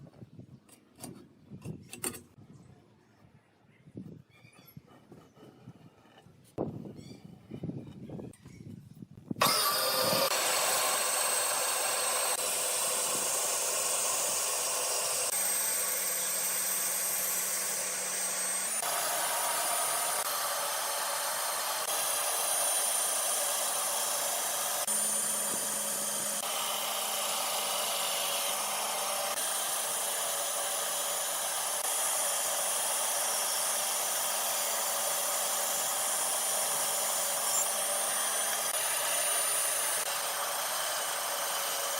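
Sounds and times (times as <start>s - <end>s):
power tool whining on wood: 9.4s - 41.9s.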